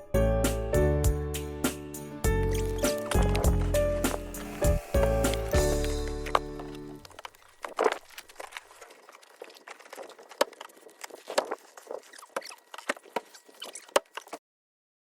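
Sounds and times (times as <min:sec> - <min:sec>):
irregular crackling clicks: 0:02.5 - 0:14.4.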